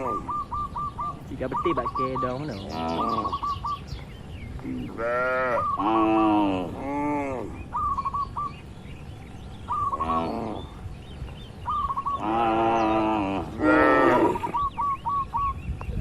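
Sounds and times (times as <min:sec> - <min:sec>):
bird chirping: 0:00.0 - 0:16.0
cattle mooing: 0:04.9 - 0:07.6, 0:12.2 - 0:14.6.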